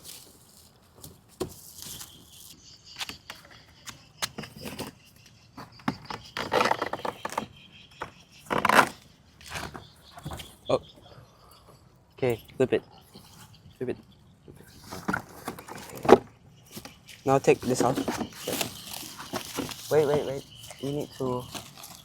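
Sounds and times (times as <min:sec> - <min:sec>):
packaging rustling: 0:17.5 - 0:22.0.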